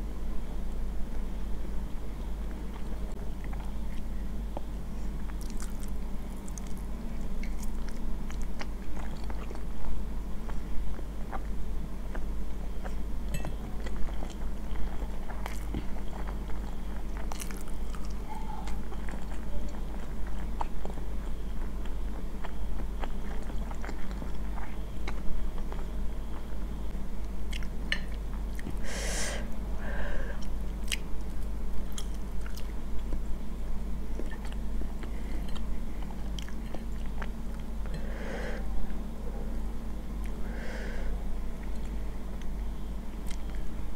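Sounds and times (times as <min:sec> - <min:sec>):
steady low hum: 0:00.0 - 0:43.9
chewing noodles: 0:05.2 - 0:09.7, 0:12.1 - 0:21.0, 0:34.2 - 0:37.7.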